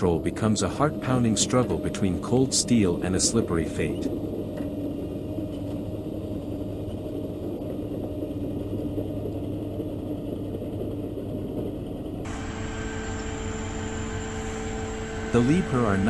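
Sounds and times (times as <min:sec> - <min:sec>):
heavy diesel engine rumbling: 0:00.0 - 0:04.2, 0:12.3 - 0:16.0
machine engine whining: 0:00.0 - 0:16.0.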